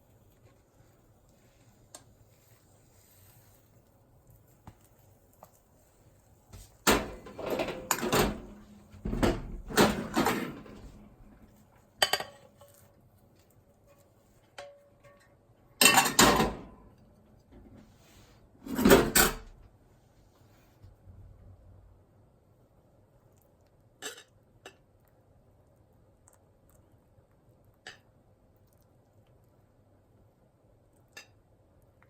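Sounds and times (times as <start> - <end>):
kitchenware knocking and scraping: 6.8 - 11.2, 15.8 - 16.8, 18.7 - 19.5.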